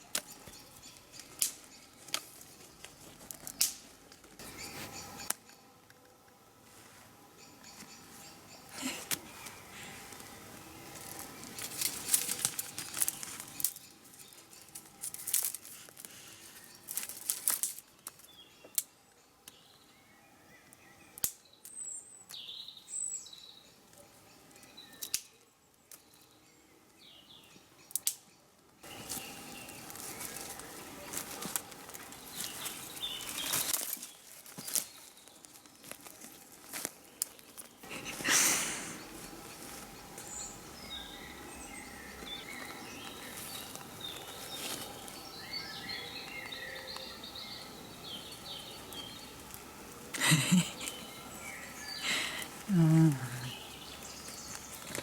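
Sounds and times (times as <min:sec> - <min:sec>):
footsteps crunching on forest floor: 0:28.9 - 0:38.2, 0:42.2 - 0:47.0.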